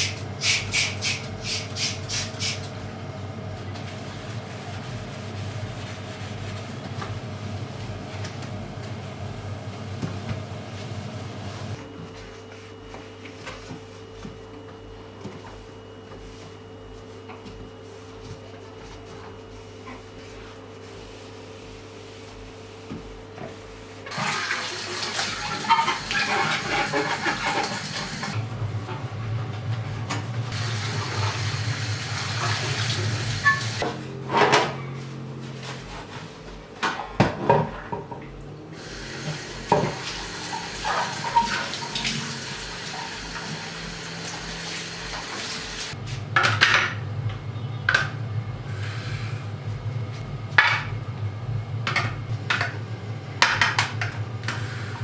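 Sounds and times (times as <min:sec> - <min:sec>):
tap water running into sink: 0:24.1 - 0:28.4, 0:30.6 - 0:33.8, 0:38.8 - 0:45.9.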